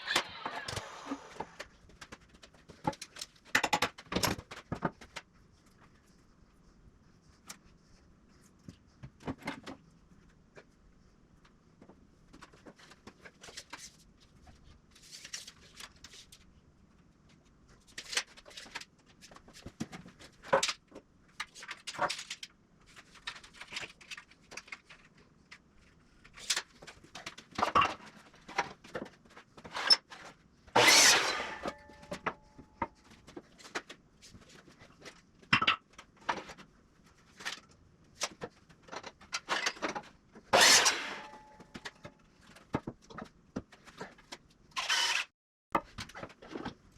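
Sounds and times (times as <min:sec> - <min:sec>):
knocks and rattles of woodwork: 0:00.0 - 0:05.3, 0:26.5 - 0:45.0.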